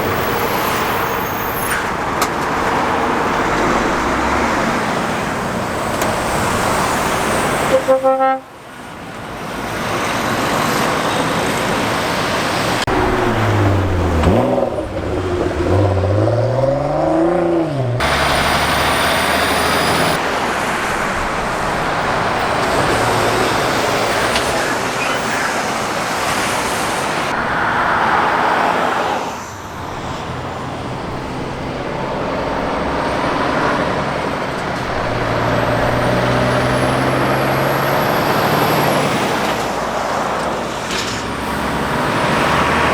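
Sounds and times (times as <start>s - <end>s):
traffic passing close by: 0.0s - 42.9s
truck engine passing: 9.4s - 42.9s.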